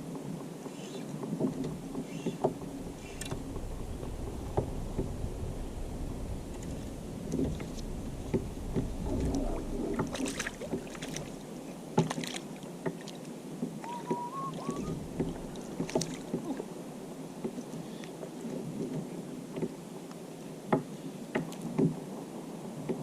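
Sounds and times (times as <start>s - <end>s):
water lapping against hull: 0.0s - 23.0s
faint whistle-like tone: 13.8s - 15.0s.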